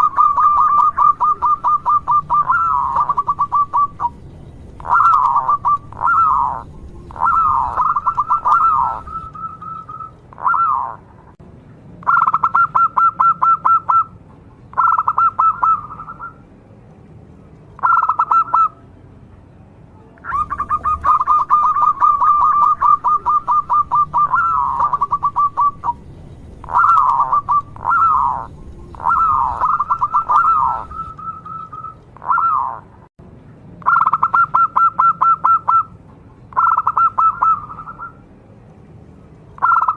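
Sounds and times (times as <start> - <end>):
dove cooing: 0.0 - 4.2, 4.8 - 11.1, 12.0 - 14.1, 14.8 - 16.4, 17.8 - 18.8, 20.2 - 26.0, 26.6 - 32.9, 33.9 - 35.9, 36.5 - 38.2.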